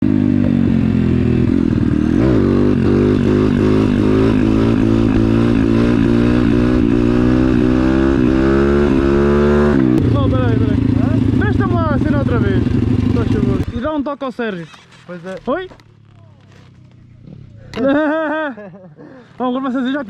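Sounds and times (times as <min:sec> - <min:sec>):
small motorbike engine revving: 0:00.0 - 0:13.9, 0:16.0 - 0:18.0.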